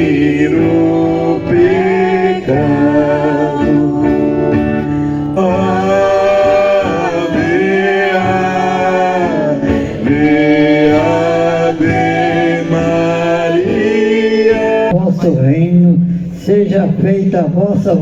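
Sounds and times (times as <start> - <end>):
instrumental accompaniment: 0.0 - 14.9
voices singing a hymn: 0.0 - 15.0.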